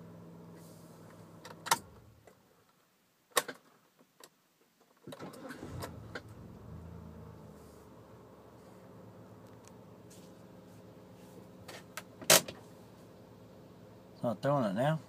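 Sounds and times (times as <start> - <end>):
car engine idling: 5.4 - 14.3.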